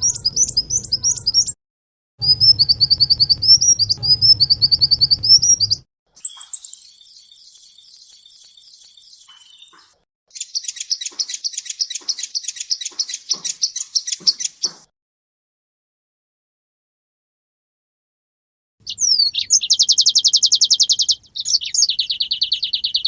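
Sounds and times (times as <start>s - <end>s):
songbird song: 0.0s - 1.6s, 2.2s - 14.9s, 18.8s - 23.0s.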